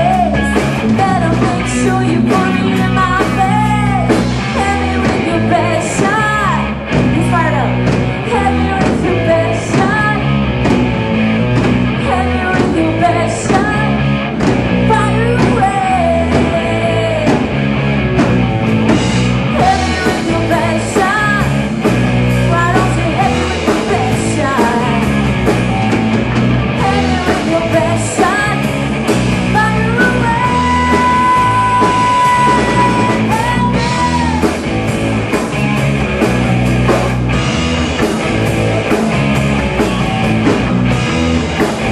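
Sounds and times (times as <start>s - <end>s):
person singing: 0.0s - 10.4s, 12.0s - 14.1s, 14.8s - 17.6s, 19.5s - 21.9s, 22.5s - 25.3s, 26.7s - 28.8s, 29.4s - 34.7s
live rock band playing: 0.0s - 41.9s.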